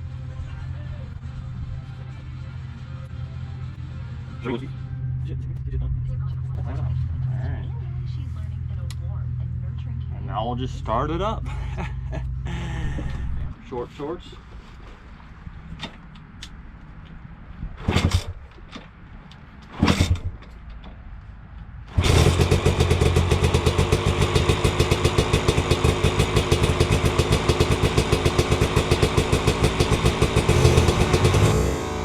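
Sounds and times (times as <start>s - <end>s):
dirt bike engine starting and running: 17.8s - 18.9s, 19.6s - 20.6s, 21.9s - 32.0s.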